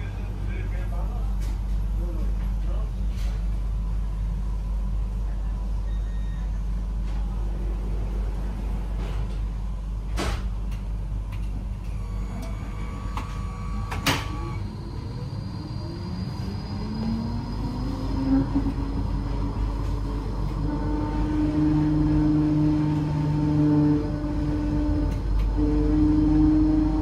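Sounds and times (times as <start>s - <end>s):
rising train motor whine: 0.0s - 27.0s
train low rumble: 0.0s - 27.0s
train door thud: 10.1s - 10.5s, 13.3s - 14.5s.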